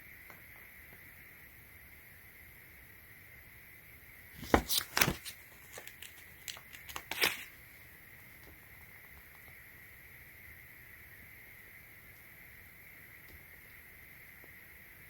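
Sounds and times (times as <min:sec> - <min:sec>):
packaging rustling and crinkling: 0:04.4 - 0:07.6.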